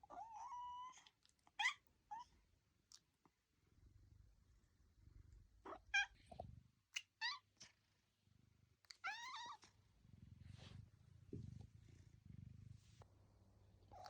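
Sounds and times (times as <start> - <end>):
cat purring: 3.6 - 6.9, 7.5 - 14.0.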